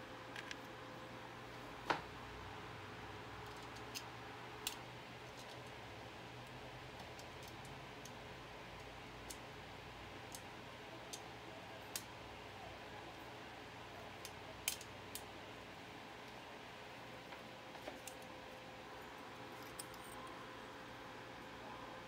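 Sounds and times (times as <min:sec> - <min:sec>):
faint steady hum: 0:00.0 - 0:22.0
light clicks of computer parts: 0:03.4 - 0:05.8, 0:14.2 - 0:15.3, 0:17.2 - 0:18.4, 0:19.4 - 0:20.4.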